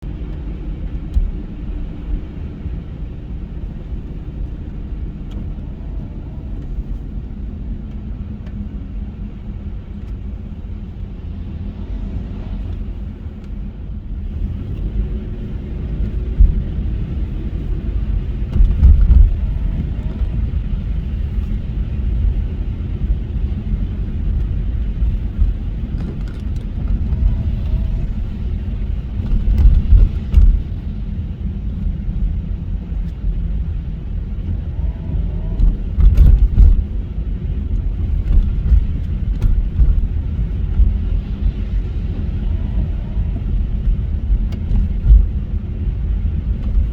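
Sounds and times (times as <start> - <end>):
car engine and road noise: 0.0 - 46.9
low thuds: 11.8 - 46.9.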